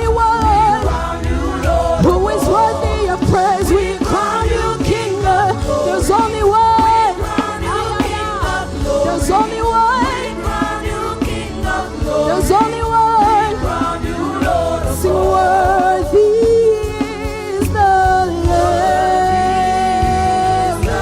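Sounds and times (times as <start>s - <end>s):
full band playing: 0.0s - 21.0s
steady drum beats: 0.0s - 21.0s
voices singing gospel: 0.0s - 21.0s.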